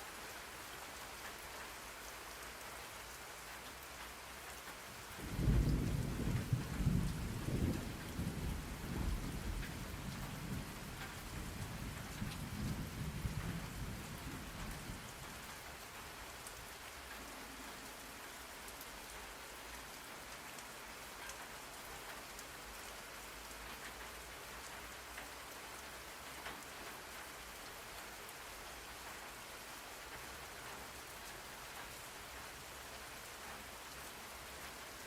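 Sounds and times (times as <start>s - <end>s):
steady rain falling: 0.0s - 35.0s
thunder rumble: 5.2s - 15.0s.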